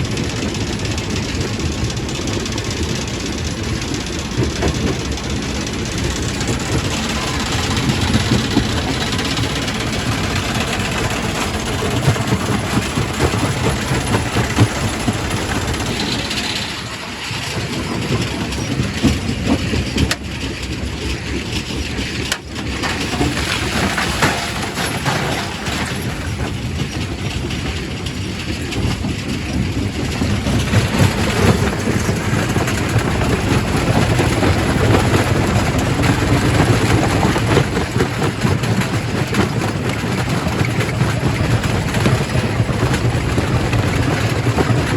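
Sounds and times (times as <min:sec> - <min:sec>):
rock crusher grinding stone: 0:06.0 - 0:20.2, 0:22.7 - 0:26.8.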